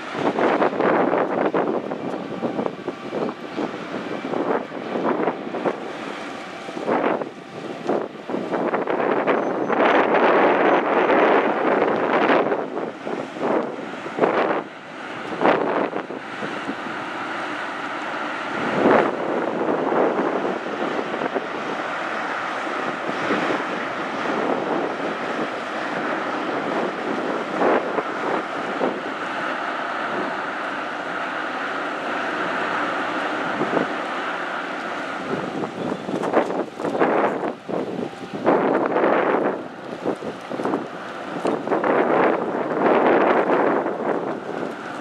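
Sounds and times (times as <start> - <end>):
ferry rushing through water: 0.0 - 45.0
wind buffeting microphone: 0.0 - 45.0.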